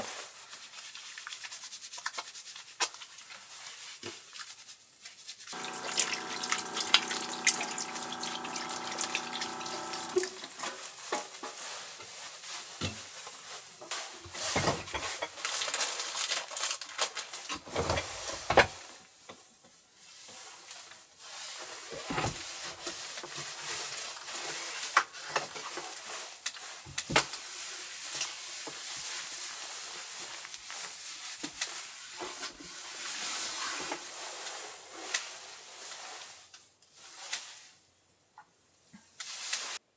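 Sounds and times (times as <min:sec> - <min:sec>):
steady hum: 0:05.6 - 0:10.3
water running and splashing: 0:05.6 - 0:10.6.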